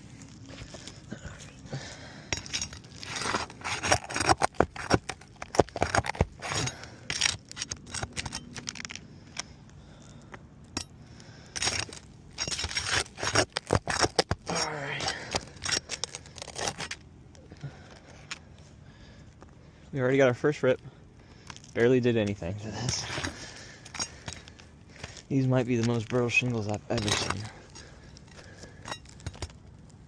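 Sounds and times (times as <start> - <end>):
tools scraping roof shingles: 1.8 - 9.3, 10.8 - 17.0, 22.7 - 29.9
shingles tearing and rustling: 1.8 - 10.3, 11.3 - 17.1, 22.7 - 30.0.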